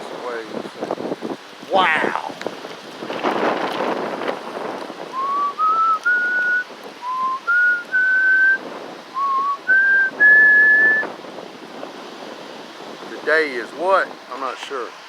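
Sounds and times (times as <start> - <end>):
wind hiss: 0.0 - 15.0
person whistling a tune: 5.2 - 8.6, 9.2 - 11.0.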